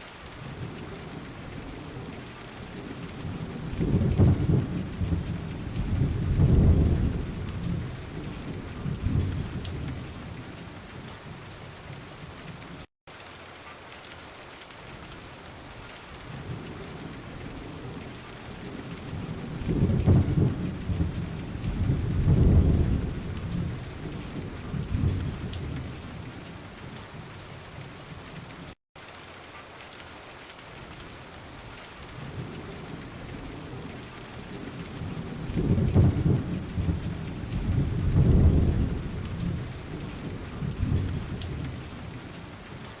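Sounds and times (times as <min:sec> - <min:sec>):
steady rain: 0:00.0 - 0:43.0
thunder rumbling: 0:00.5 - 0:12.3, 0:16.3 - 0:28.3, 0:32.1 - 0:42.5.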